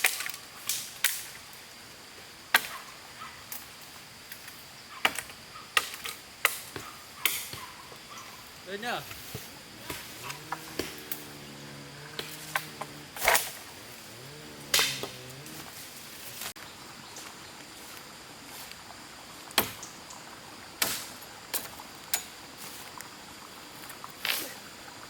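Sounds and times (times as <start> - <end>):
blade chopping tree branches: 9.2 - 11.2, 12.1 - 13.8, 14.6 - 16.5.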